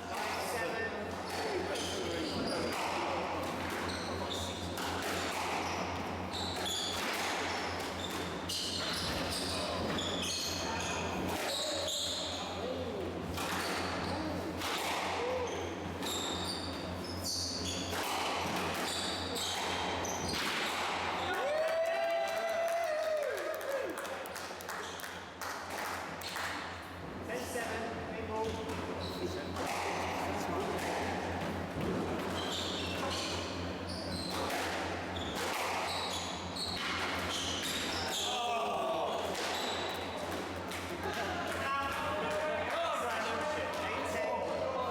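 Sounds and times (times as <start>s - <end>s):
shoes squeaking on court floor: 0.4s - 12.8s, 13.4s - 14.6s, 15.3s - 21.3s, 32.2s - 38.5s, 39.1s - 40.3s.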